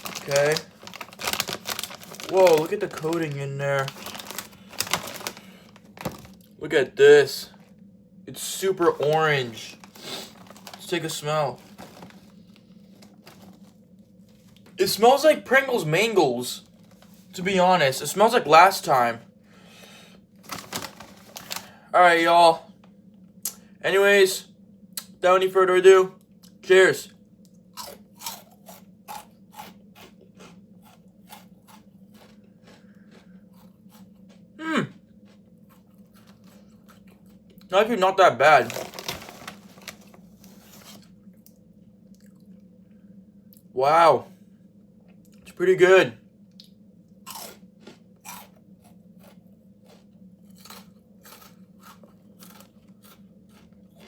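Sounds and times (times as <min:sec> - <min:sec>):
chewing crunchy crackers: 0:00.0 - 0:06.6, 0:08.8 - 0:13.8, 0:20.4 - 0:21.8, 0:27.7 - 0:37.7, 0:38.6 - 0:42.6, 0:46.6 - 0:54.0.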